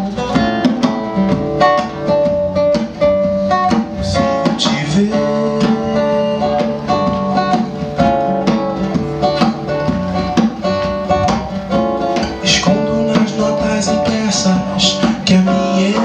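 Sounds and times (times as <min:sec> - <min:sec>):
acoustic guitar strumming: 0:00.0 - 0:16.0
person singing: 0:03.9 - 0:07.1, 0:12.4 - 0:16.0.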